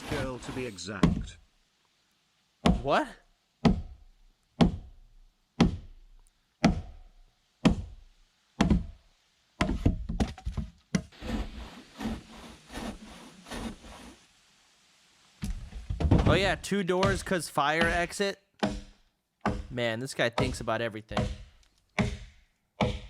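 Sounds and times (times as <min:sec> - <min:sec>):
hand tool striking wood: 0:06.6 - 0:06.9, 0:07.6 - 0:07.9, 0:08.6 - 0:08.9, 0:17.0 - 0:19.7, 0:20.4 - 0:23.0.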